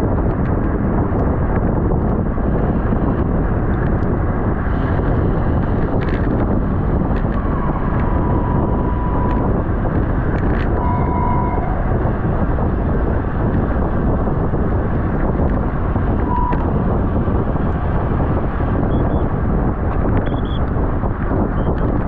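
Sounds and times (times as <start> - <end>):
wind rushing on microphone: 0.0 - 22.0
brief high tone: 7.3 - 9.8, 10.6 - 12.0, 16.2 - 16.7.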